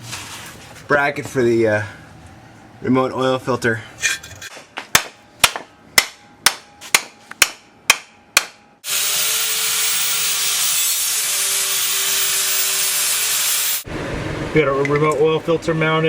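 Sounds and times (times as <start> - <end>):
hammer striking metal: 4.9 - 8.7
loud hissing shop tool: 8.8 - 13.9.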